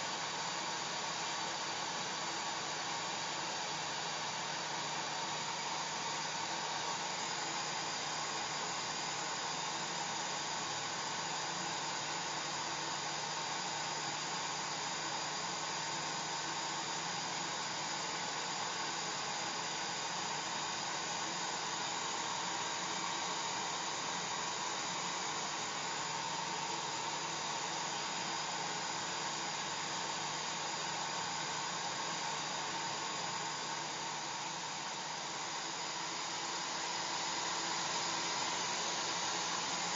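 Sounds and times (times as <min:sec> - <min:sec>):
hair dryer running: 0:21.0 - 0:39.9.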